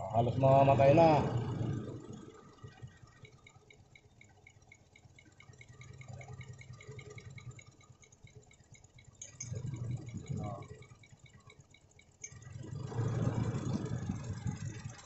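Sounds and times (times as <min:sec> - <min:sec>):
engine idling unevenly: 0:00.0 - 0:15.0
light ticking: 0:00.1 - 0:15.0.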